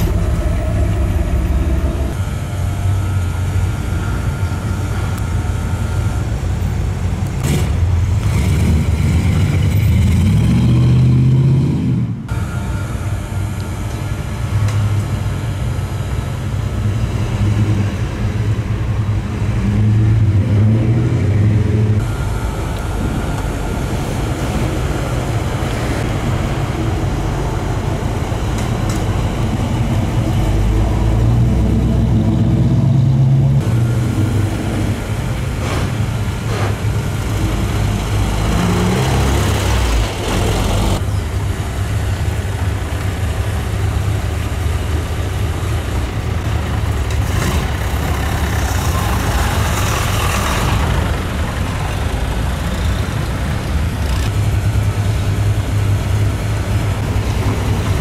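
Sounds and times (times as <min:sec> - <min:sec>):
car engines rumbling and revving: 0:00.0 - 0:58.0.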